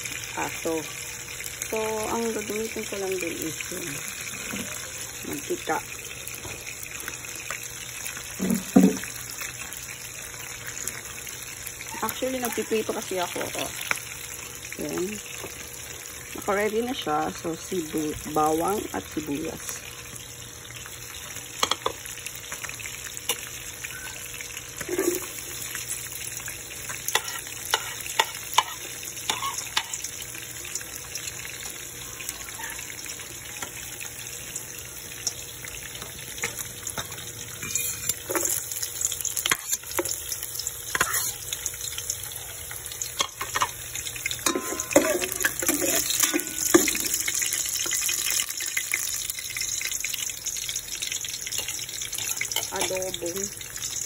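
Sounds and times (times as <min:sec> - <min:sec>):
garlic and onion sizzling in oil: 0:00.0 - 0:54.0.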